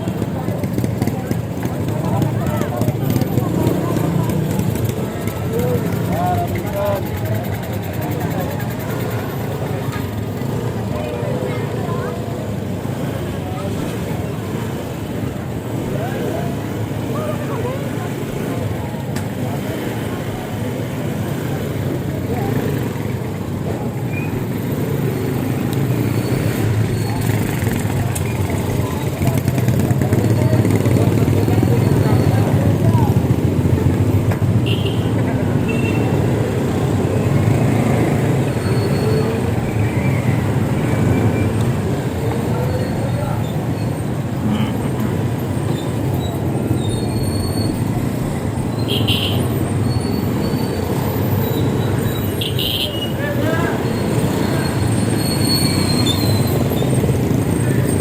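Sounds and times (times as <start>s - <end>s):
low rumble of road noise: 0.0s - 58.0s
high squeak: 53.8s - 57.0s.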